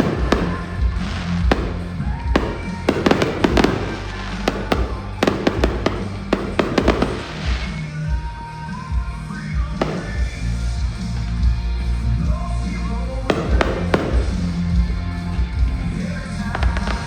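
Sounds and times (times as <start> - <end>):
fireworks bangs and crackles: 0.0 - 17.0
show music: 0.0 - 17.0.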